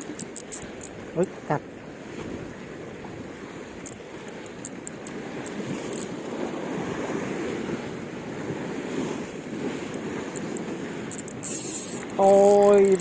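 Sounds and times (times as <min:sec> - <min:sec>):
short high clicks: 0:00.0 - 0:01.4, 0:03.9 - 0:06.1, 0:09.9 - 0:13.0
surf: 0:00.0 - 0:13.0
wind buffeting microphone: 0:00.6 - 0:13.0.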